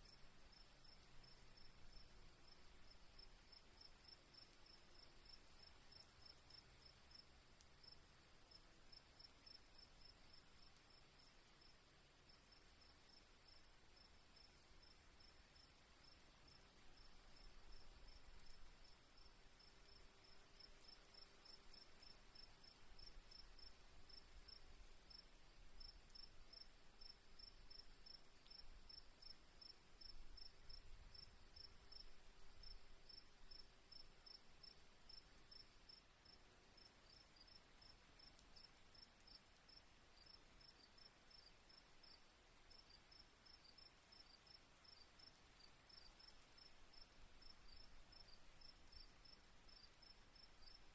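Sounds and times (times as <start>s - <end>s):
cricket steady trill: 0.0s - 50.9s.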